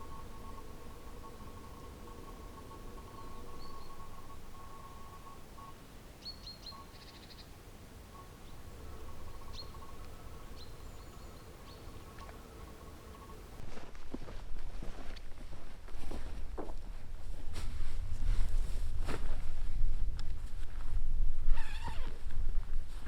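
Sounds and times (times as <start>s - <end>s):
small birds chirping: 0.0s - 13.6s
faint steady tone: 0.0s - 13.7s
faint outdoor background noise: 0.0s - 23.0s.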